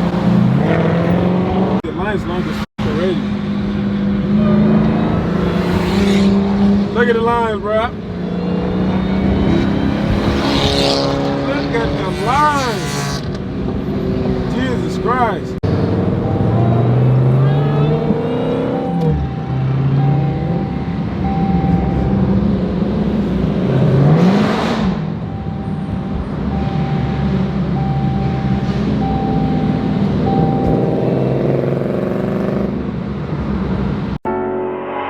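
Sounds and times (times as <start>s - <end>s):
engine revving: 0.0s - 33.0s
car engines idling in traffic: 17.5s - 23.8s, 25.0s - 32.1s.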